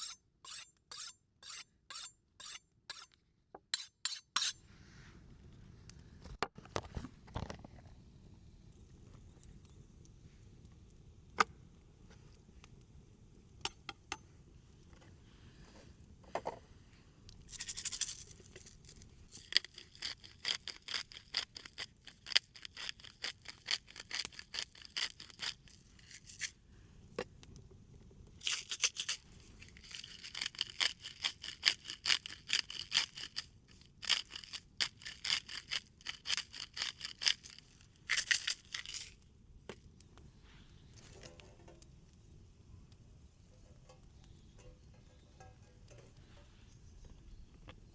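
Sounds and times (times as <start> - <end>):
knife sawing through steak: 0.0 - 3.1, 3.8 - 4.6.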